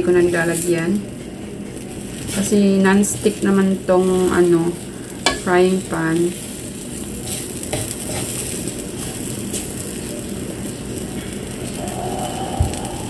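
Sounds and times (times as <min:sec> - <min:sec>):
pancake batter sizzling: 0:01.8 - 0:13.0.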